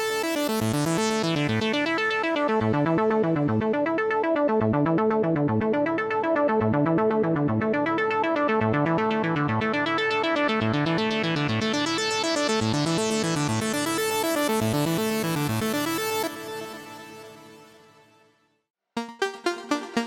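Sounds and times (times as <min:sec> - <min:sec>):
synthesizer arpeggio: 0:19.0 - 0:20.0.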